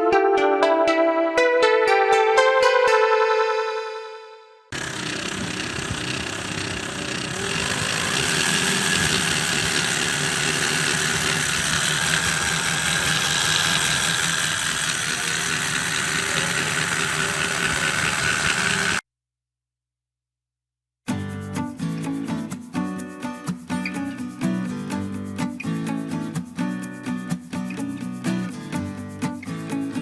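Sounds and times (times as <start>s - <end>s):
model aircraft engine running: 4.8s - 19.0s.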